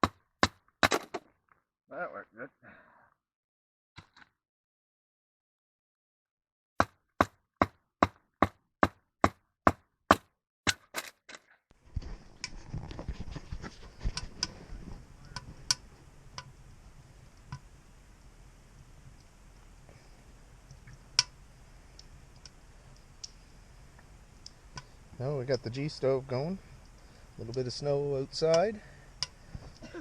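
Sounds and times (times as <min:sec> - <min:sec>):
low rumble of stove draft: 0:11.8 - 0:30.0
wood fire crackling in stove: 0:11.8 - 0:30.0.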